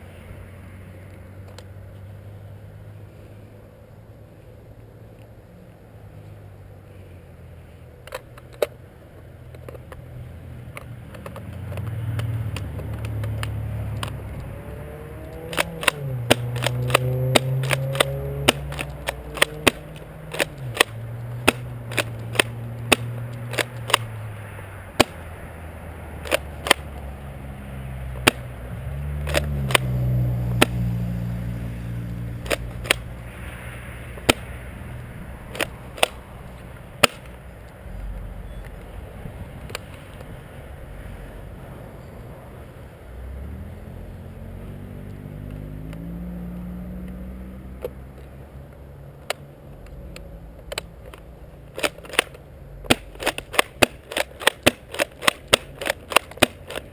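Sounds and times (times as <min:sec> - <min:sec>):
airsoft gunshots: 0:15.4 - 0:24.1, 0:51.8 - 0:56.8.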